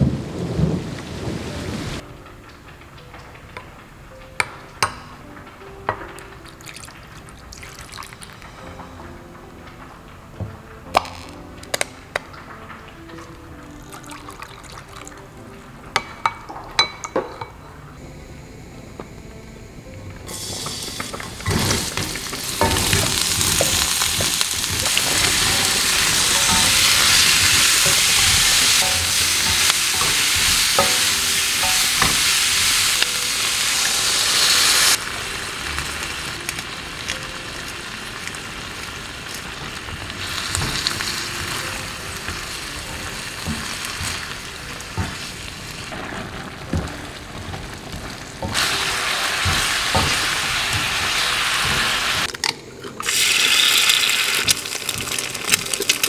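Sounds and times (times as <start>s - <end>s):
hot oil sizzling in a wok: 20.3s - 52.4s, 53.0s - 56.0s.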